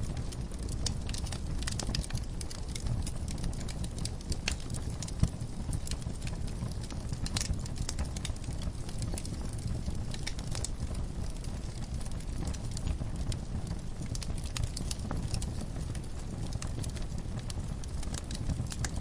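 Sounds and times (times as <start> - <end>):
low fire rumble: 0.0 - 19.0
wood fire crackling and popping: 0.0 - 19.0.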